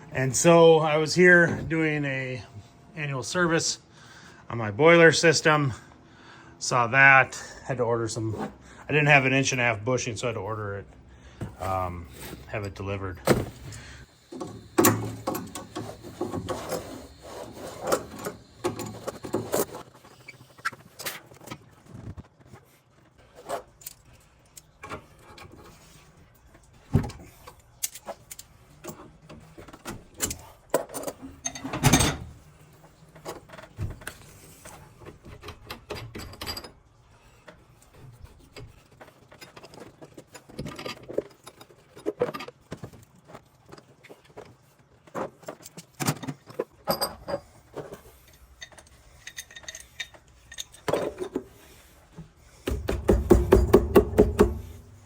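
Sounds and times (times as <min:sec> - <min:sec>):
metal fittings clicking and clanking: 0:48.1 - 0:51.5
loud knocks: 0:52.7 - 0:54.8.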